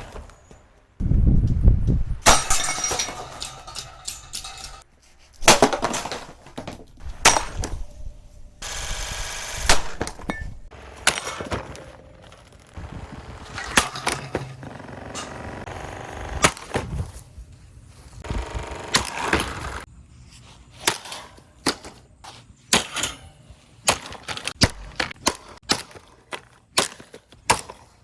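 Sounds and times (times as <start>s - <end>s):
plastic fan being smashed: 2.2s - 7.8s.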